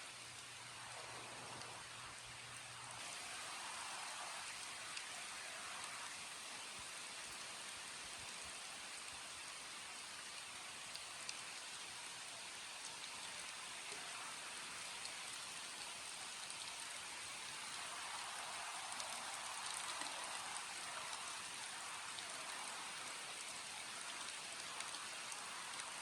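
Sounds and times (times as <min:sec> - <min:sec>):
steady rain falling: 0:00.0 - 0:26.0
raindrops ticking: 0:08.4 - 0:26.0.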